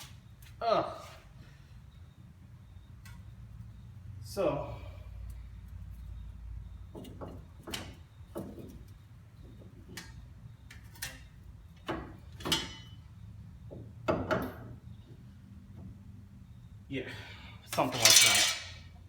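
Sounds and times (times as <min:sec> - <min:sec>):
metal parts clinking and knocking: 0:17.7 - 0:18.8.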